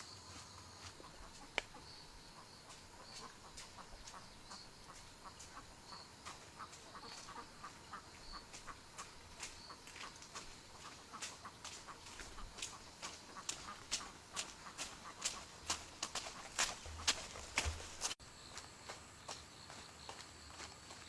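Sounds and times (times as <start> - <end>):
faint poultry chirps: 1.0 - 15.4.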